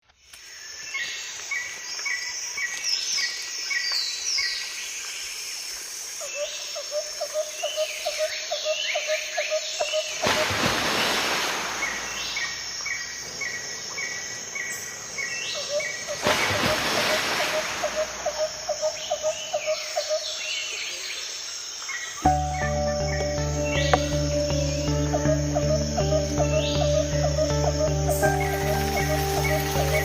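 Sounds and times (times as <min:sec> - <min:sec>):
bird-like chirps and calls: 0:11.8 - 0:30.0.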